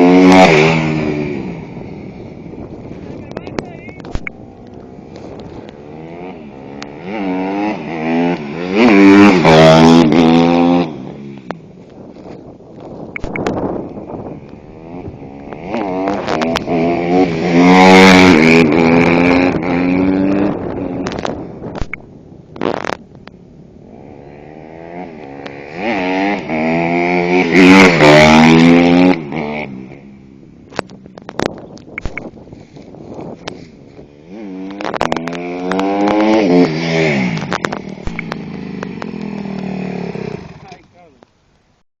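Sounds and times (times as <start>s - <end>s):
motorcycle engine revving hard: 0.0s - 2.5s, 5.1s - 11.4s, 13.4s - 21.8s, 23.8s - 30.2s, 33.3s - 40.8s.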